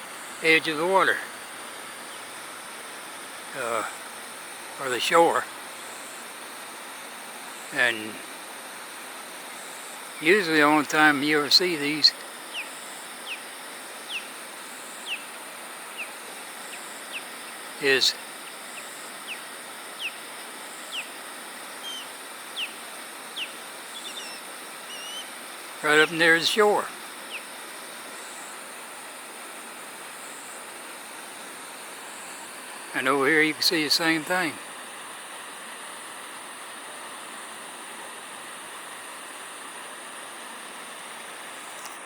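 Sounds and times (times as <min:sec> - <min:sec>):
steady high hiss: 0:00.0 - 0:42.0
bird calling: 0:09.5 - 0:28.7
flat chirps: 0:11.9 - 0:21.2, 0:21.8 - 0:25.4.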